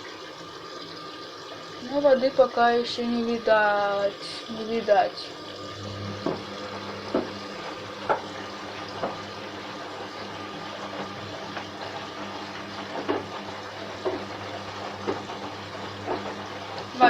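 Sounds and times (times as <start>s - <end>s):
water filling washing machine: 0.0s - 17.0s
short splashes or knocks: 6.1s - 9.4s.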